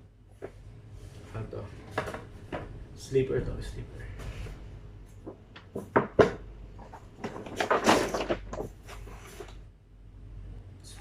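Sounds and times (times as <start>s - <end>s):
gift packaging rustling: 6.8s - 9.6s.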